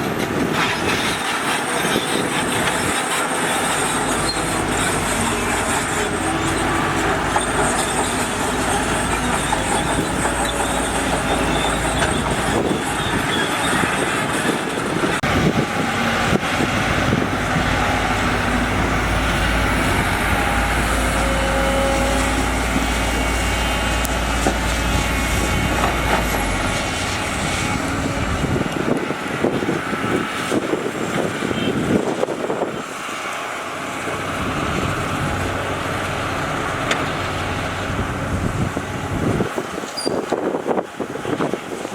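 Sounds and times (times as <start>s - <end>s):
diesel machinery engines running: 0.0s - 41.9s
short squeals: 0.6s - 14.5s, 40.0s - 40.3s.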